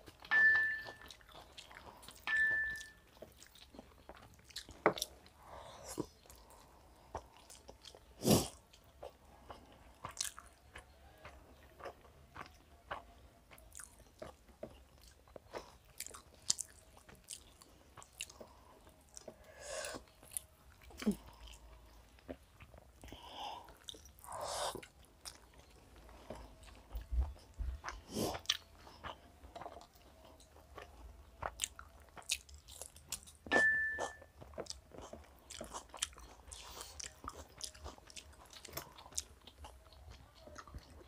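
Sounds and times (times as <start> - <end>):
chewing and mouth smacking: 0.0 - 41.0
brief high tone: 2.3 - 3.0.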